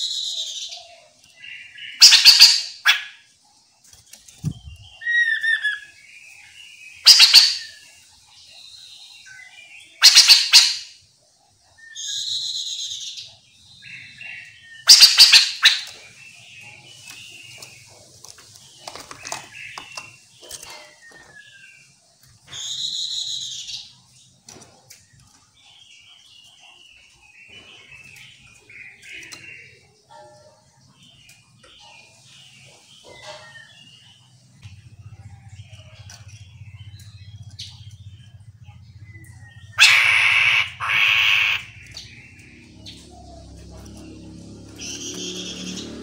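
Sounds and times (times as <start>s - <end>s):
harsh rasping bird calls: 0.0s - 3.5s, 4.3s - 24.3s, 25.0s - 46.0s
bird chirps: 0.0s - 46.0s
bird calling sharp notes: 1.7s - 3.2s, 7.0s - 7.8s, 10.0s - 10.9s, 13.9s - 16.2s, 39.0s - 43.7s.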